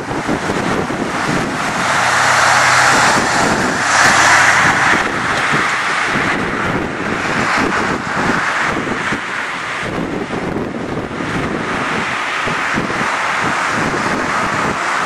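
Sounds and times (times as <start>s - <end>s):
jet engine roar: 0.0s - 15.0s
wind buffeting microphone: 0.0s - 15.0s.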